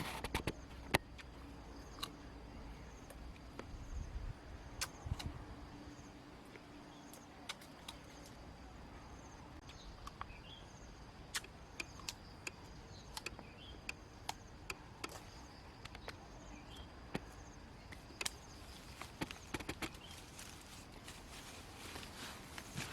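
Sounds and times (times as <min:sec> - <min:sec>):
sharp clicks and snaps: 0:04.8 - 0:05.4, 0:11.3 - 0:16.2, 0:17.1 - 0:20.1.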